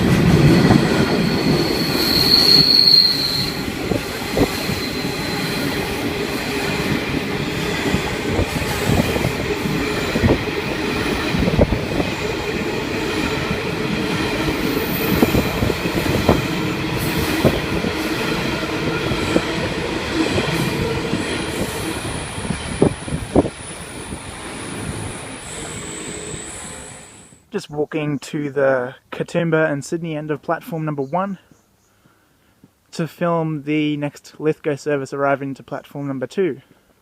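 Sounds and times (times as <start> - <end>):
freight train wheels rumbling: 0.0 - 27.3
faint high wheel squeal: 0.6 - 3.6, 24.6 - 27.4.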